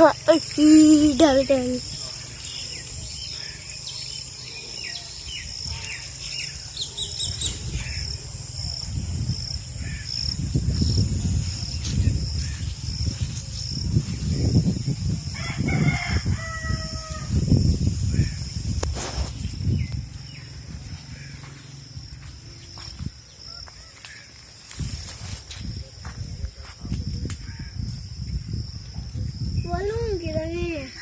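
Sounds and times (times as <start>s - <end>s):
small birds chirping: 0.0s - 16.1s, 17.4s - 25.0s
rooster crowing: 15.3s - 17.5s, 23.4s - 24.3s.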